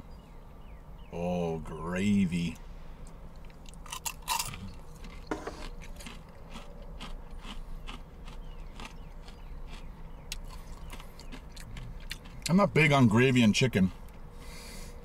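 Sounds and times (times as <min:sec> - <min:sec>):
low steady hum: 0:00.0 - 0:15.0
crunchy chewing: 0:03.1 - 0:14.8.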